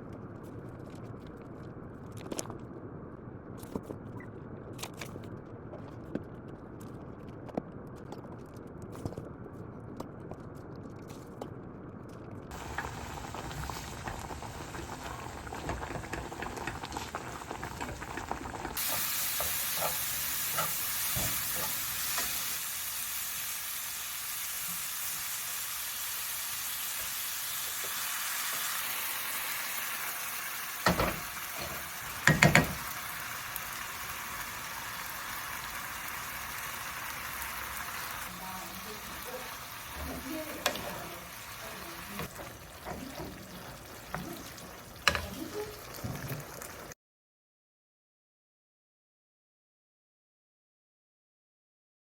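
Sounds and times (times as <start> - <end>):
food sizzling in a frying pan: 12.5 - 47.0.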